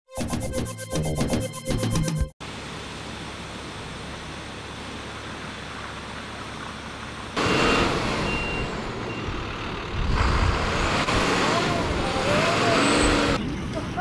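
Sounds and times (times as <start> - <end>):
street traffic: 2.4 - 14.0
heavy truck passing: 3.4 - 13.6
truck reversing beeper: 7.4 - 10.0.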